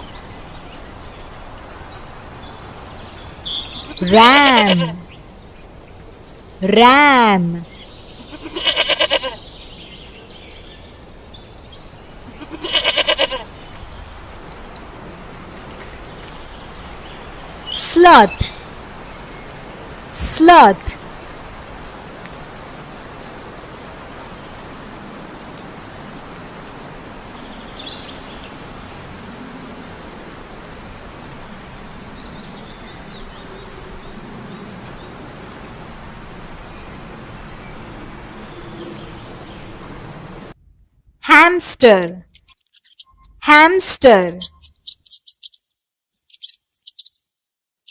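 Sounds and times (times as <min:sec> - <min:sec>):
steady outdoor hiss: 0:00.0 - 0:40.8
ram bleating: 0:08.3 - 0:09.4, 0:12.4 - 0:13.4
faint bird chirps: 0:44.4 - 0:47.2.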